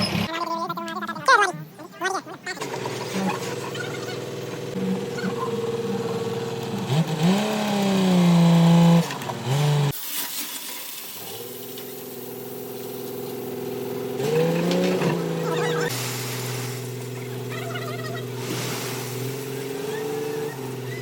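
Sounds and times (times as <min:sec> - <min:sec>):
concrete mixer engine revving: 0:02.6 - 0:10.0, 0:11.2 - 0:21.0.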